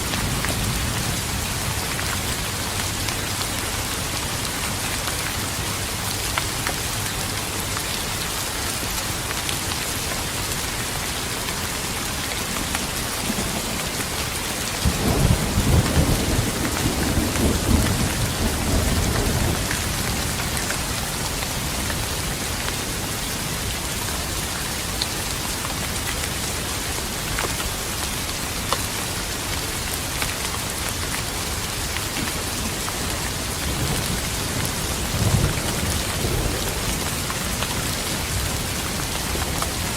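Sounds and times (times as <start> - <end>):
heavy rain hissing: 0.0 - 39.9
thunder rumbling: 14.8 - 20.9.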